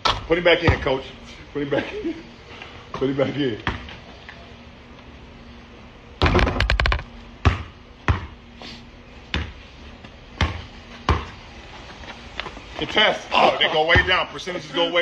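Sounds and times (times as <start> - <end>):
basketball bouncing on hard court: 3.6 - 3.8, 6.2 - 8.4, 9.3 - 9.6, 10.4 - 11.4.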